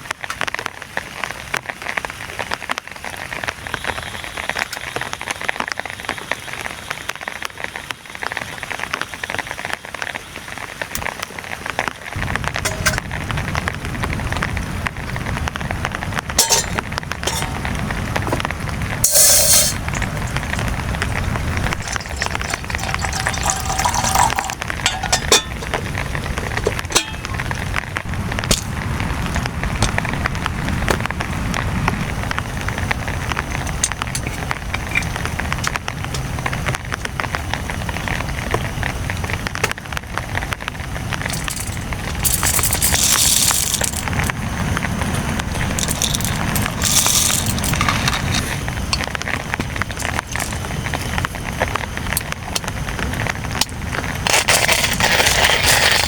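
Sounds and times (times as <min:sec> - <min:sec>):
heavy rain drumming on a tent: 0:00.0 - 0:56.0
loud hiss bursts: 0:19.0 - 0:20.6.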